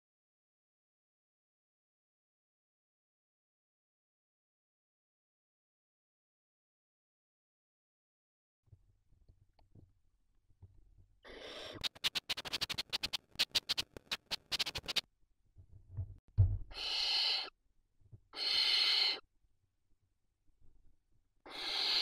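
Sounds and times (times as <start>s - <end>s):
owl chick harsh call: 11.2s - 13.0s, 16.7s - 17.6s, 18.3s - 19.2s, 21.5s - 22.0s
owl chicks hissing begging calls: 11.2s - 15.0s, 16.7s - 17.5s, 18.4s - 19.2s, 21.5s - 22.0s
low thump: 15.9s - 16.7s.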